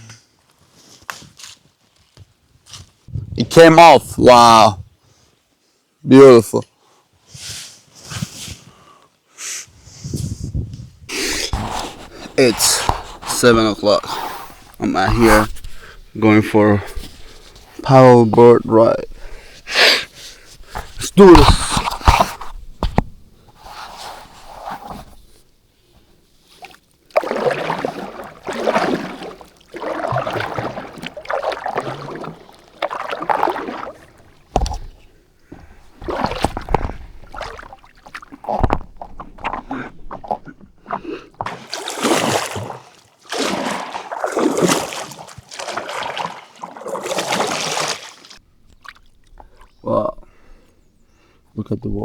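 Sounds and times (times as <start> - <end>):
paddle splashing in water: 11.1 - 49.8.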